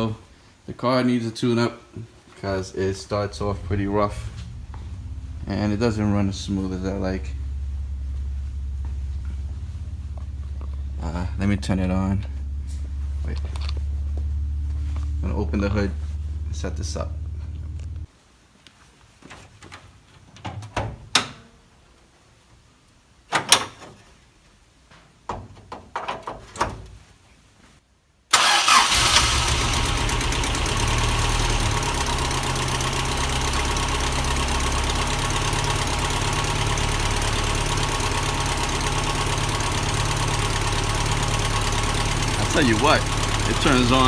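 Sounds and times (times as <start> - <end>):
car engine starting and idling: 2.4 - 18.1, 28.3 - 44.0.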